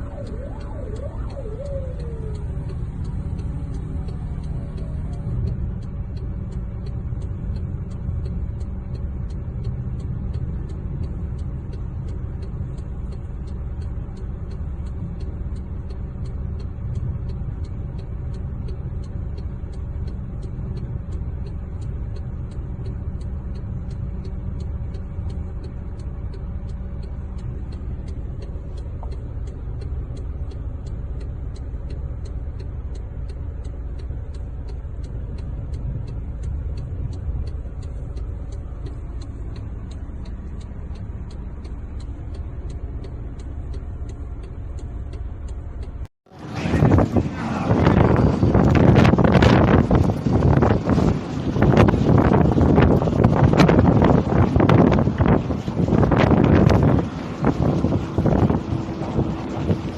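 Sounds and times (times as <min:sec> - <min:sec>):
faint ticking: 0:00.0 - 0:59.9
road vehicle rumbling: 0:00.0 - 0:59.9.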